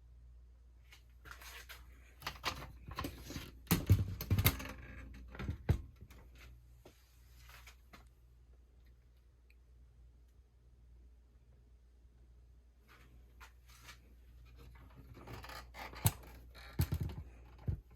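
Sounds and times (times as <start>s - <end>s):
handling clicks knocks and rustles: 2.2s - 6.4s.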